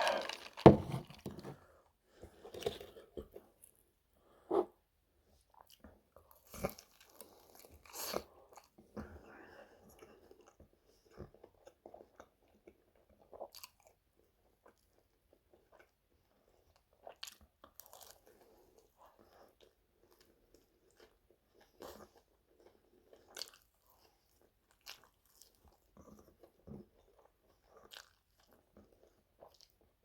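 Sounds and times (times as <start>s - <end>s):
crispy chicken skin crunching: 0.0s - 0.7s
soft chewing: 1.3s - 30.0s.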